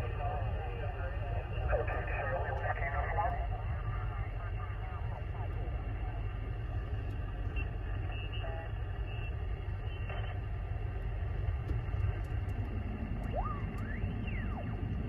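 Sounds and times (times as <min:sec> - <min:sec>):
radio static: 0:00.0 - 0:11.0
deep rumble: 0:00.0 - 0:15.0.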